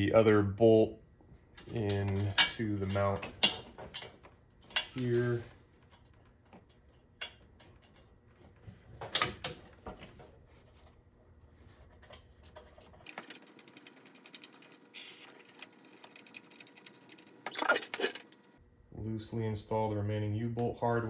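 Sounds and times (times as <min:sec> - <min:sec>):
metal bolts and nuts clinking: 0:13.0 - 0:18.6.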